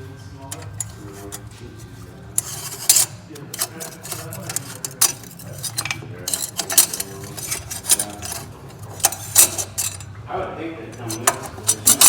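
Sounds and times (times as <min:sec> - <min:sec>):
metal tools clanking: 0:00.4 - 0:10.2, 0:10.9 - 0:12.0.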